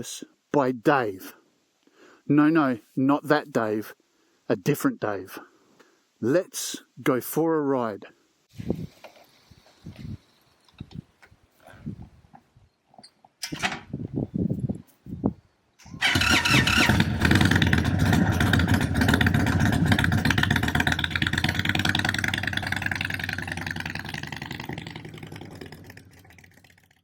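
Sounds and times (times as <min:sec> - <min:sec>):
motorcycle engine starting and running: 0:15.8 - 0:27.0.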